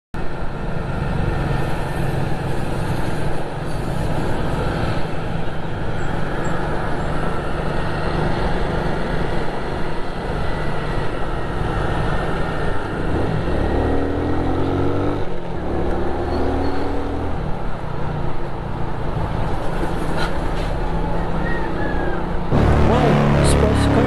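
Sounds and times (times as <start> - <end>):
road and wind noise: 0.2 - 24.0
vehicle engine running: 22.5 - 24.0.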